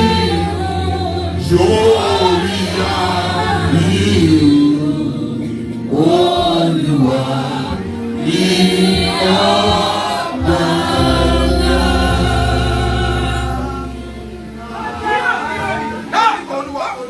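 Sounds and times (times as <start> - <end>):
low steady bass note: 0.0 - 6.1, 10.4 - 15.1
choir singing gospel: 0.0 - 16.5.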